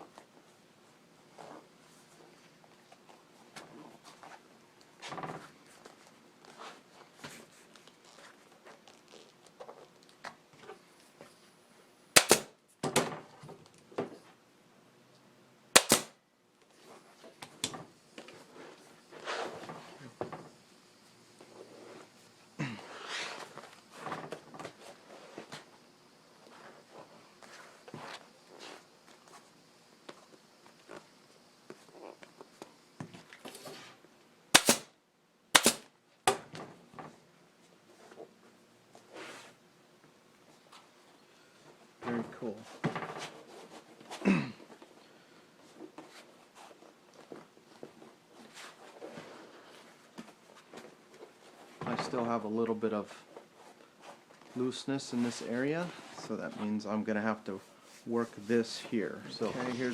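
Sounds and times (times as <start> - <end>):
handling clicks: 12.2 - 12.5, 34.6 - 34.9, 35.6 - 35.9
staple gun firing: 12.2 - 12.5, 15.8 - 16.1, 34.6 - 34.9, 35.6 - 35.9
rustling of cover material: 57.6 - 59.9.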